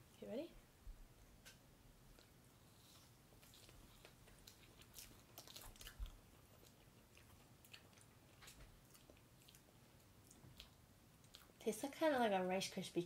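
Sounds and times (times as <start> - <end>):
people chewing: 2.1 - 11.6.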